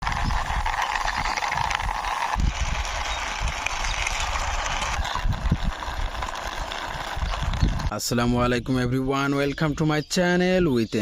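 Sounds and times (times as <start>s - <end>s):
toy vehicle wheels rolling: 0.0s - 8.0s.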